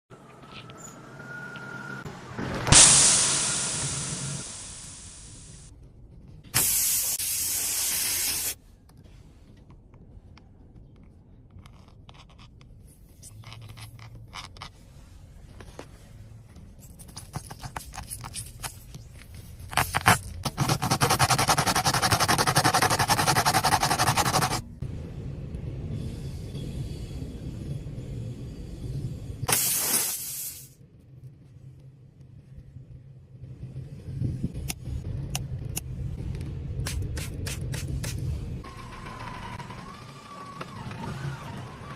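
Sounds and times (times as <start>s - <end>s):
air hissing: 2.7s - 5.7s, 6.6s - 8.6s, 29.5s - 30.8s.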